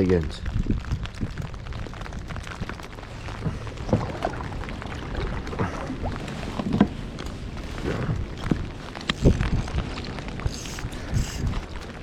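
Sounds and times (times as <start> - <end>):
knocks and handling on kayak: 3.3 - 8.6.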